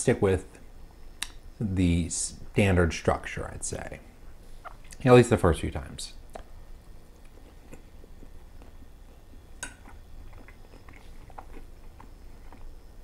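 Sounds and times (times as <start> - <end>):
person chewing food: 7.1 - 13.0.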